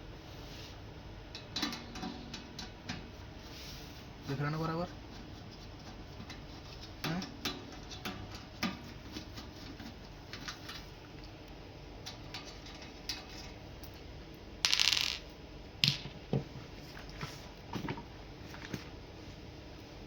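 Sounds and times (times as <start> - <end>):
hands clicking kettle parts: 1.3 - 3.1.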